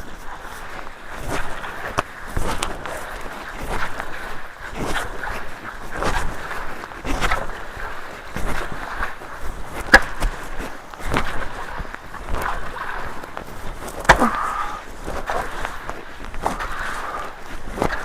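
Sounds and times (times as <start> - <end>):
splashes and knocks: 13.7 - 15.8.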